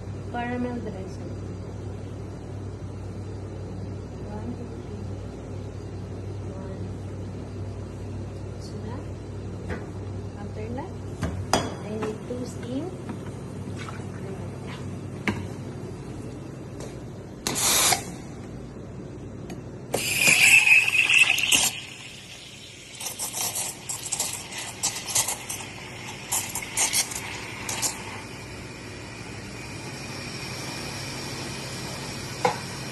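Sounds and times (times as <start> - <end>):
coffee machine steamer hissing: 17.4 - 18.3, 19.9 - 32.9.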